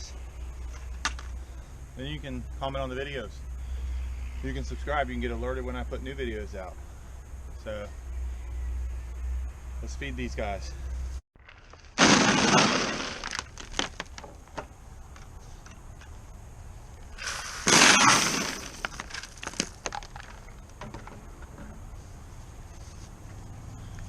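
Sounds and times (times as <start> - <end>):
pieces landing clicks: 11.4 - 16.2, 17.7 - 21.2.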